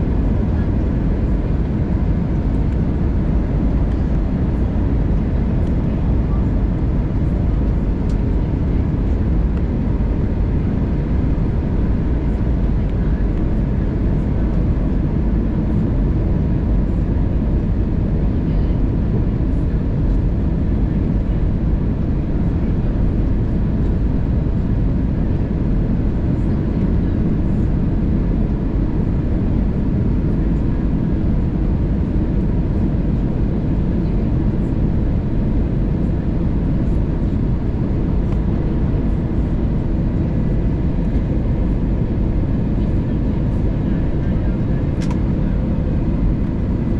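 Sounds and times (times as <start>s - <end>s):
airplane cabin airflow and engine rumble: 0.0s - 46.9s.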